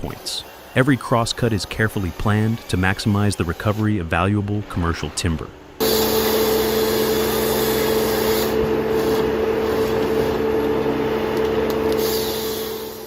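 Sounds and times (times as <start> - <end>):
forestry harvester whine and hiss: 5.8 - 13.0.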